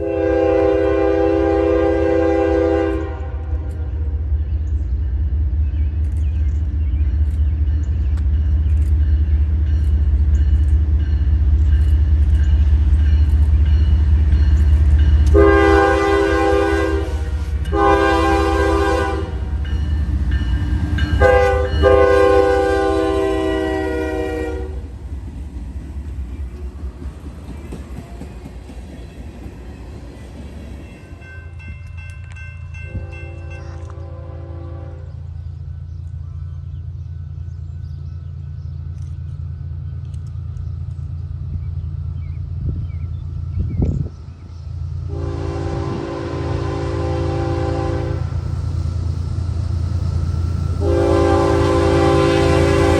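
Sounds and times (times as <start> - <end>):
locomotive horn blasts: 0.0 - 4.0, 15.2 - 19.8, 21.2 - 24.9, 32.9 - 35.2, 45.1 - 48.4, 50.8 - 52.9
diesel locomotives rumbling past: 0.0 - 52.9.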